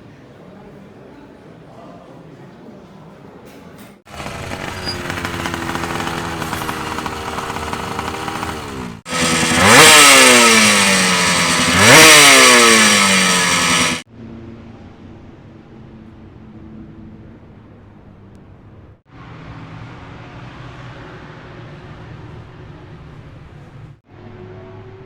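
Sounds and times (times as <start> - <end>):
motorcycle engines revving: 4.1 - 14.1.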